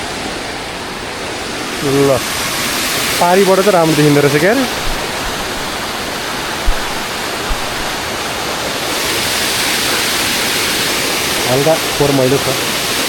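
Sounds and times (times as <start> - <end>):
waterfall rushing: 0.0 - 13.0
brief low bump: 4.8 - 5.7, 6.6 - 8.0.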